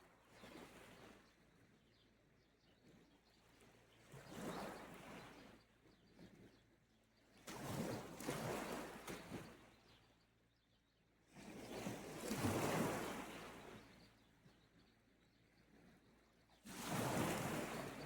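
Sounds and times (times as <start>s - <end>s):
small waves washing onto shore: 16.7s - 18.0s.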